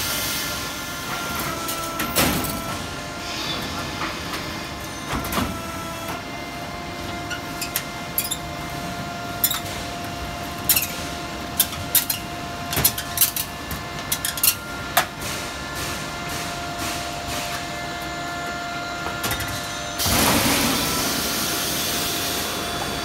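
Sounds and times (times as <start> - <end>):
machine line humming and whining: 0.0 - 23.0.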